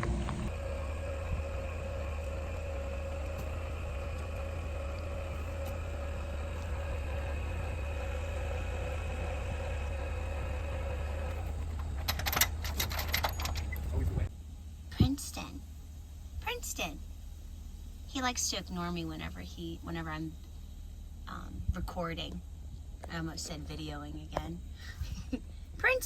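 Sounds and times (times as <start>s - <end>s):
vehicle engine idling: 0.0s - 26.0s
clicks and rattles: 11.3s - 14.1s.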